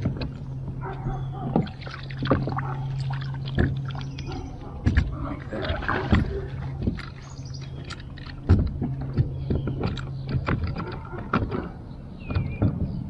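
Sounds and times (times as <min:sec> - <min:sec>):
steady low hum: 0:00.0 - 0:13.0
clicks and knocks on plastic kayak: 0:04.8 - 0:05.2, 0:05.8 - 0:13.0.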